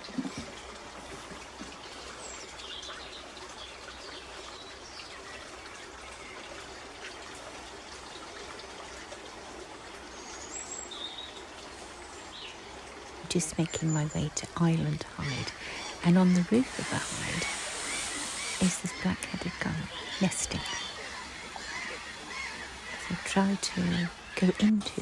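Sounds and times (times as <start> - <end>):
steady background hiss: 13.2 - 25.0.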